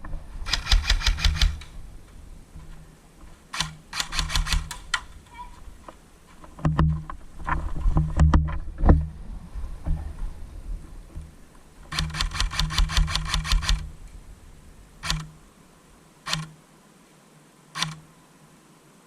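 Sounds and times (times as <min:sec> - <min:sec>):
airsoft gun shots: 0:00.5 - 0:01.7, 0:03.6 - 0:05.1, 0:11.9 - 0:13.9.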